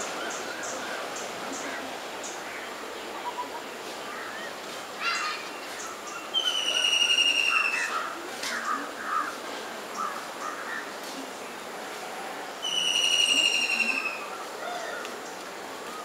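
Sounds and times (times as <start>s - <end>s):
bird whistle falling: 6.4s - 7.8s, 12.6s - 14.0s
bird trill: 6.4s - 7.9s.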